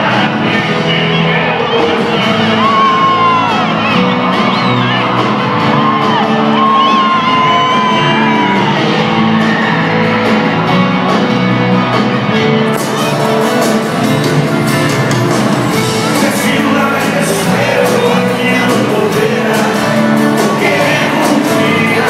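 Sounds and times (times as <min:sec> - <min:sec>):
live band music: 0:00.0 - 0:22.0
audience shouts and whoops: 0:01.5 - 0:11.9.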